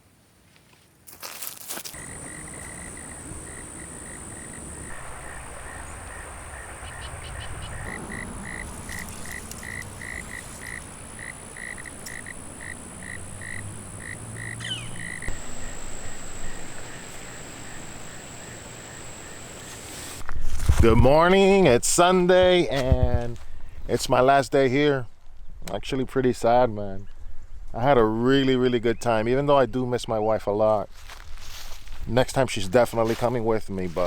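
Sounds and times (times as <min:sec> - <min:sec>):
high insect drone: 0:01.8 - 0:20.3
frog calling: 0:02.0 - 0:20.2.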